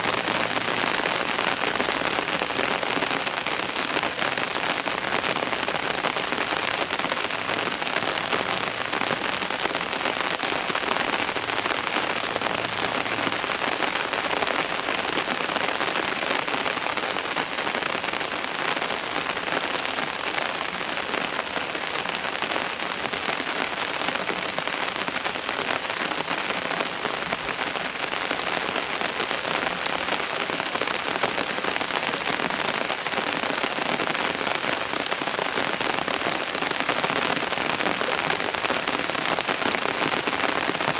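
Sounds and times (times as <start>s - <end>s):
rain pattering on surfaces: 0.0s - 40.9s.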